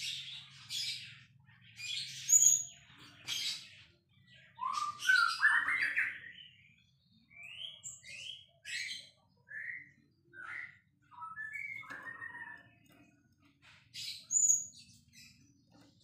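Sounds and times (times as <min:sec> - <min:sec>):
songbird whistling and chattering: 0:04.4 - 0:06.6, 0:07.3 - 0:12.8.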